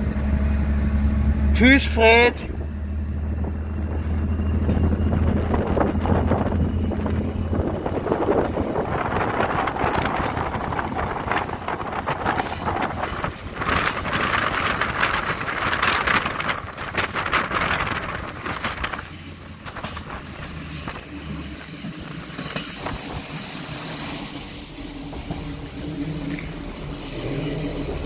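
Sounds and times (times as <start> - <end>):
railcar rumbling on rails: 0.0 - 28.0
wind rushing over microphone: 4.9 - 21.1.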